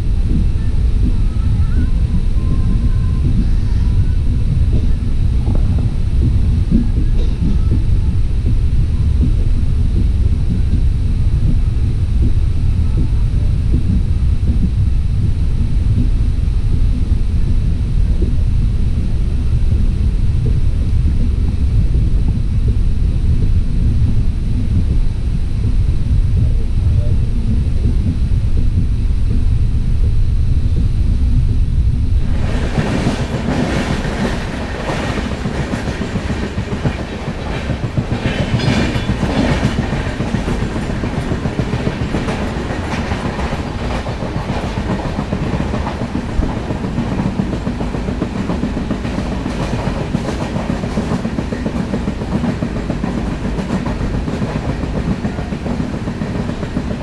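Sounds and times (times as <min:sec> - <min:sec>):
wind-buffeted train rumble: 0:00.0 - 0:57.0
train wheels clickety-clack: 0:32.3 - 0:57.0.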